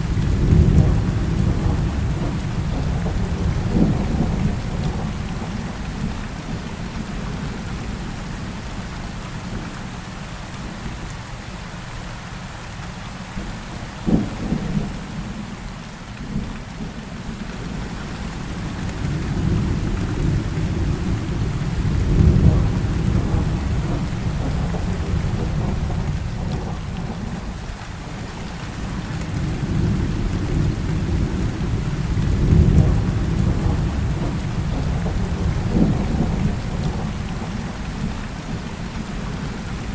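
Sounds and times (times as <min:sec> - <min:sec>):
low rolling thunder: 0:00.0 - 0:08.0, 0:14.0 - 0:15.4, 0:17.6 - 0:39.9
heavy rain falling: 0:00.0 - 0:39.9.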